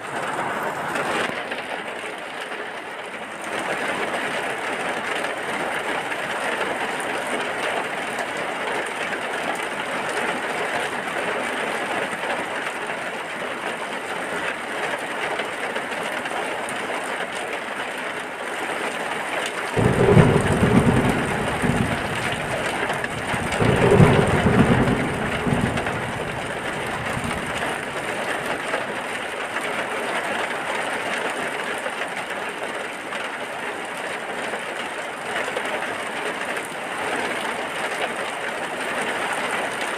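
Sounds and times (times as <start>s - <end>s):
steady rain falling: 0.0s - 39.9s
low rumbles of thunder: 19.8s - 28.8s.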